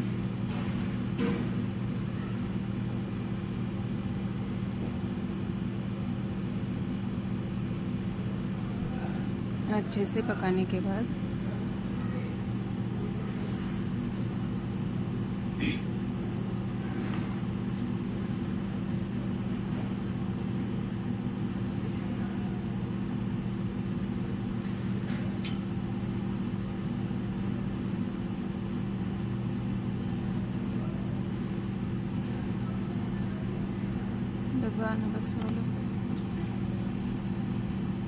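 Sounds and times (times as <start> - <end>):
low mechanical hum: 0.0 - 38.0.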